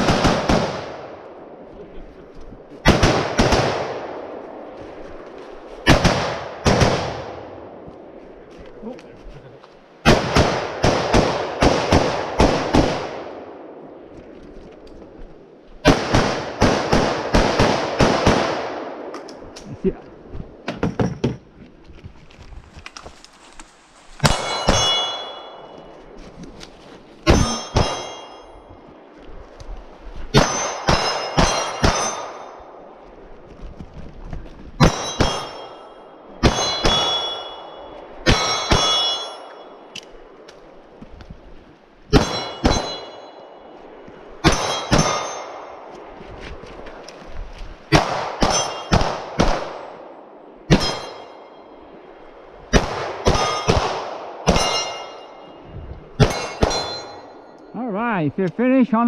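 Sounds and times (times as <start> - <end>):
gunshots with long echo: 0.0 - 2.0, 2.8 - 8.4, 10.0 - 14.1, 15.4 - 19.6, 30.3 - 33.4, 34.8 - 40.9, 42.1 - 46.2, 47.9 - 57.5
steel target clanging: 24.2 - 26.2, 27.2 - 28.9, 30.3 - 32.7, 34.8 - 40.1, 42.1 - 45.9, 47.9 - 49.3, 50.7 - 52.1, 52.8 - 55.6, 56.2 - 57.7.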